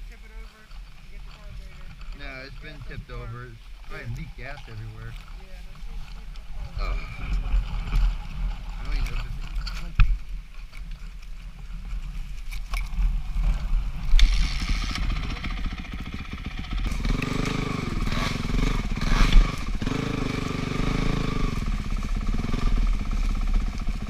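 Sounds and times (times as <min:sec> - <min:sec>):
dirt bike engine revving: 0:01.9 - 0:05.4, 0:06.0 - 0:10.0, 0:12.9 - 0:24.0.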